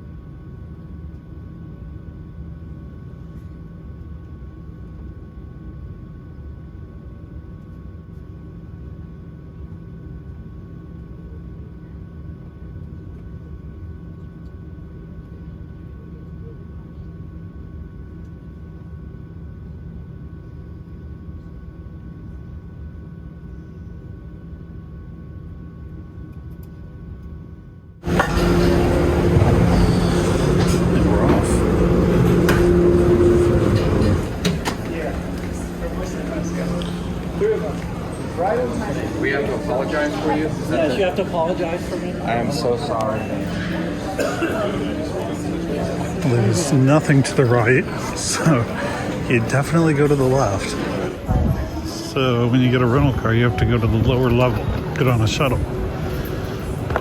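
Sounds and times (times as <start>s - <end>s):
airliner cabin rumble: 28.0s - 57.0s
faint steady tones: 28.0s - 57.0s
loud noisy rush: 28.0s - 57.0s.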